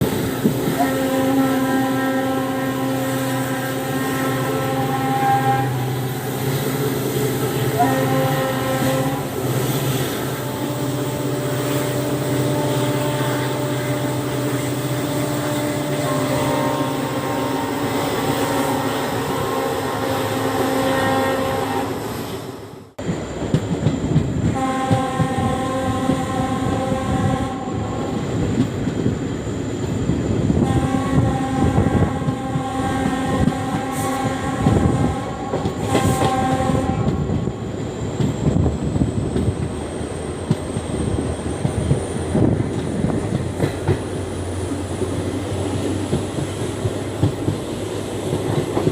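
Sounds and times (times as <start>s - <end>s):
diesel locomotive engine rumbling: 0.0s - 48.9s
moving train clatter: 0.0s - 48.9s
locomotive horn blasts: 0.5s - 6.0s, 7.4s - 22.0s, 24.5s - 28.2s, 30.6s - 37.4s.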